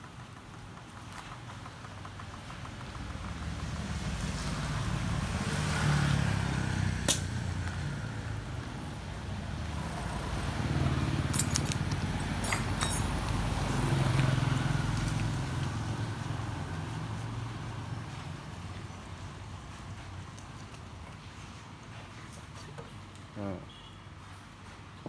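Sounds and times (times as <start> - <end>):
vehicle engine rumbling: 1.4 - 20.2.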